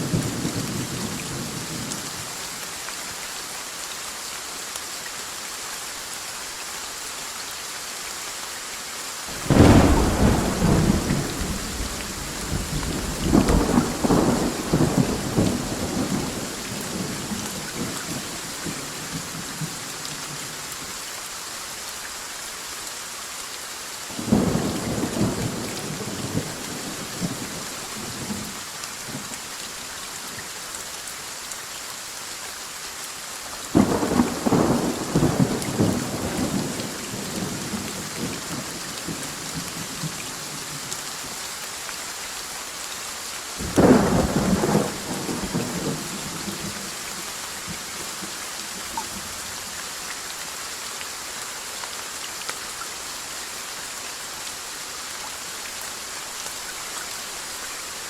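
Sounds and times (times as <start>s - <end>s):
steady rain: 0.0s - 58.0s
thunder rolling: 9.3s - 16.4s.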